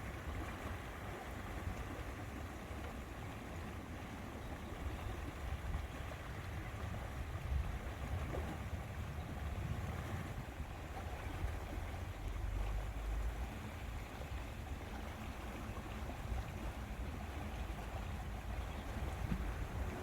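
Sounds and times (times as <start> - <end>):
wind rumbling on microphone: 4.5 - 20.0.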